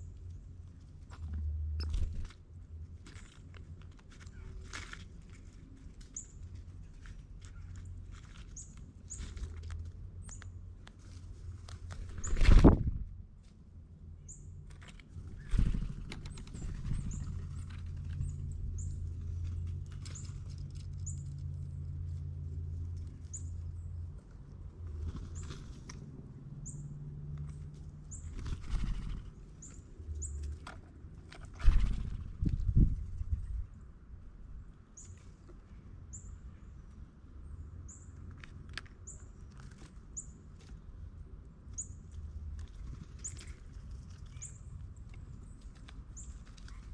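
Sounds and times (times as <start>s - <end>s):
bird chirping: 28.1s - 30.5s.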